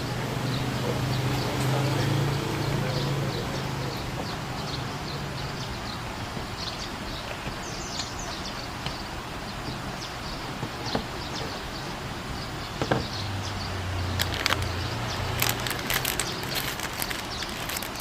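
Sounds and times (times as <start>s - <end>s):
small bird chirping: 6.6s - 18.0s.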